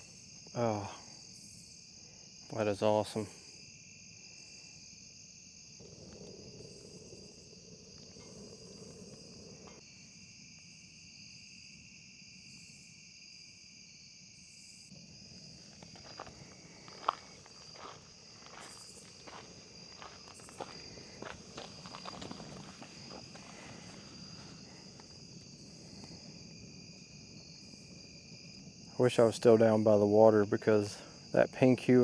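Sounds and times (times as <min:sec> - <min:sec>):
insects chirping: 0:00.0 - 0:32.0.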